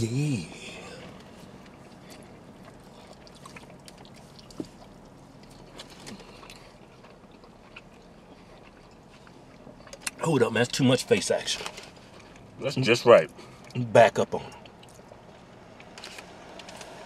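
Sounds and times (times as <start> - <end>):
wet chewing: 0.8 - 10.8, 14.4 - 17.0.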